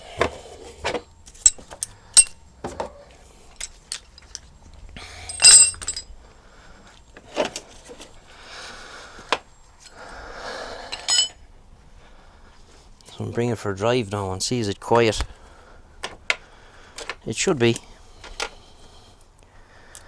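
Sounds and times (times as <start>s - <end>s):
metal tools clicking and knocking: 0.9s - 3.0s, 3.6s - 4.4s, 5.2s - 6.0s, 11.0s - 11.4s
metallic clatter: 1.4s - 2.4s, 5.3s - 6.0s.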